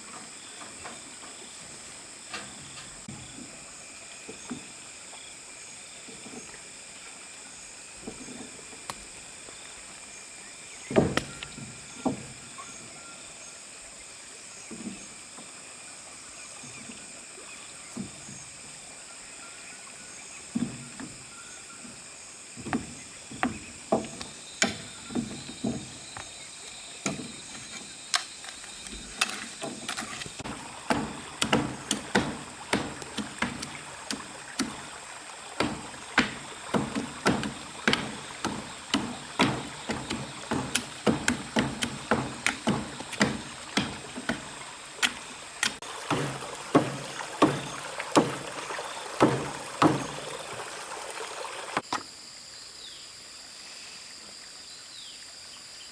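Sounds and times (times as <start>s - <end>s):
sharp knocks: 10.9s - 12.3s, 22.6s - 26.2s, 27.0s - 28.3s, 28.9s - 35.0s, 35.6s - 50.3s.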